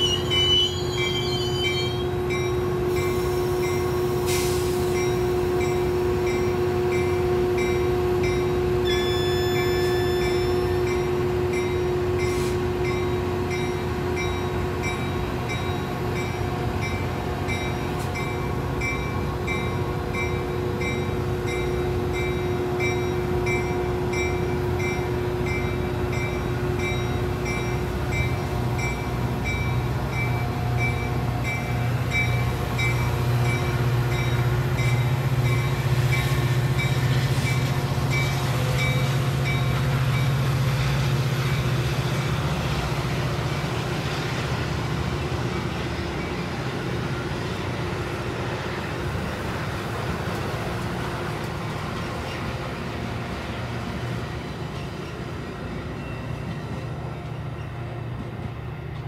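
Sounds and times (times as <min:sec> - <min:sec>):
crossing bell ringing: 0:00.0 - 0:04.1, 0:04.9 - 0:40.4
diesel locomotive engine hum: 0:00.0 - 0:59.0
train wheel rumble: 0:00.0 - 0:59.0.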